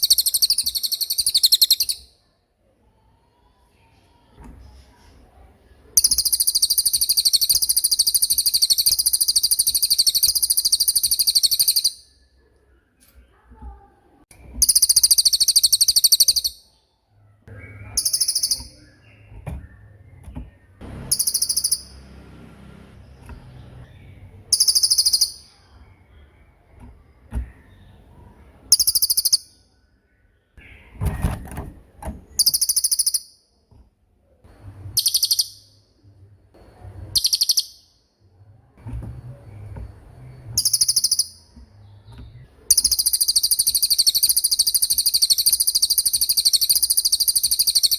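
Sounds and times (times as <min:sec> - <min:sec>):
songbird high rolling trills: 0:00.0 - 0:02.2, 0:06.0 - 0:12.1, 0:21.0 - 0:22.2, 0:42.7 - 0:47.9.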